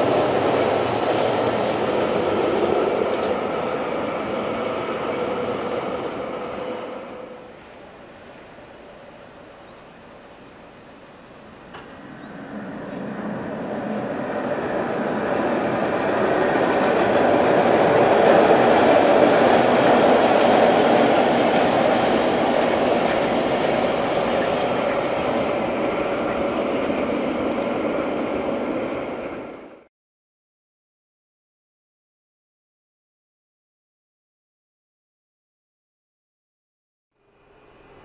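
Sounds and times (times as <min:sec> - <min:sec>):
train wheels on rail: 0:00.0 - 0:29.9.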